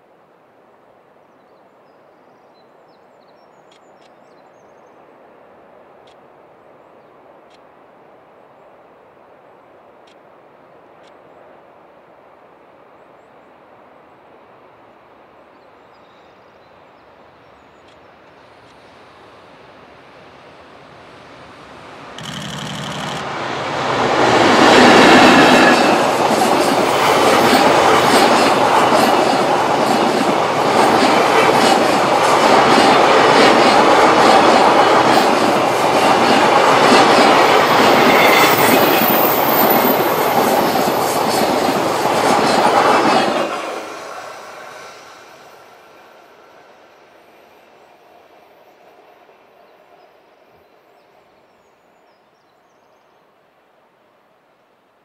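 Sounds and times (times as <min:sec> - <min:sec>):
electric locomotive passing: 0:13.9 - 0:51.7
train wheels clattering over rails: 0:22.2 - 0:45.3.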